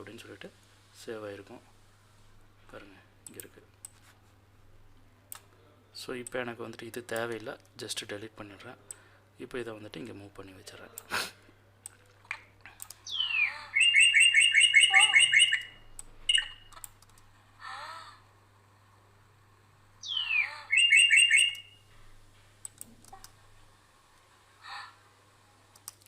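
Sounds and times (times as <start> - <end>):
songbird trilling: 13.1 - 16.7, 20.0 - 21.7.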